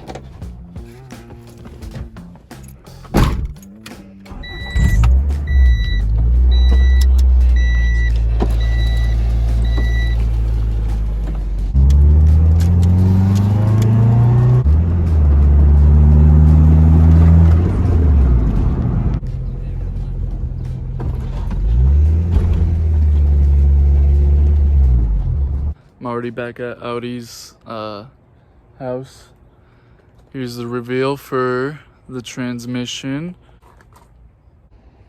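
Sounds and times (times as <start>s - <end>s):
warning chime beeping: 4.4s - 10.3s
car engine revving: 4.7s - 25.7s
thump: 22.2s - 22.8s.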